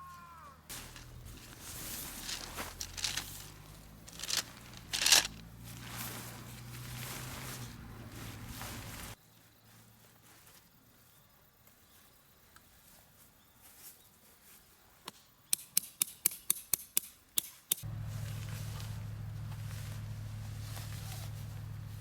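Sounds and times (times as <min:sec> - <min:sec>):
steady low hum: 0:17.8 - 0:22.0.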